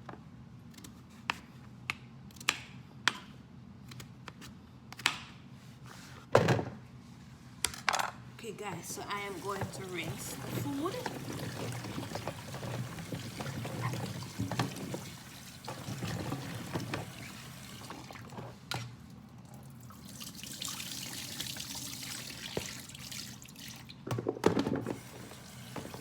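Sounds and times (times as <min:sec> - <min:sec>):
tap water running into bowl: 0:08.9 - 0:18.5, 0:19.4 - 0:24.2, 0:24.8 - 0:26.0.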